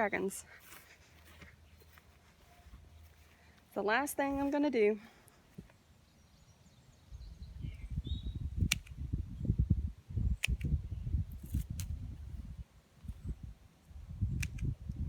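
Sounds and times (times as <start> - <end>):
wind rumble on microphone: 7.0 - 15.0
garden snips clicking: 8.6 - 9.0, 10.4 - 10.8, 11.4 - 12.0, 14.3 - 15.0.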